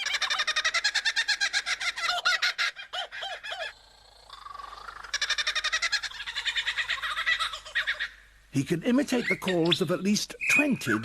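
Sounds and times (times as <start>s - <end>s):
lyrebird mimicking bird calls: 0.0s - 8.2s.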